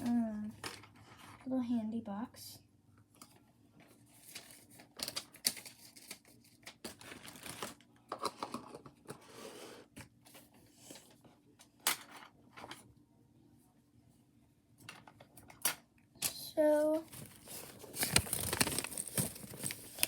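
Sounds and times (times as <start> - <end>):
paper rustling: 3.8 - 7.8, 17.0 - 20.0.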